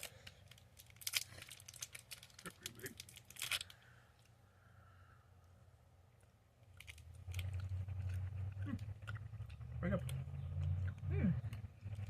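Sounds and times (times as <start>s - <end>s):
candies being chewed: 0.0s - 4.3s, 6.2s - 12.0s
wrapper crackle: 0.0s - 4.3s, 6.7s - 8.2s.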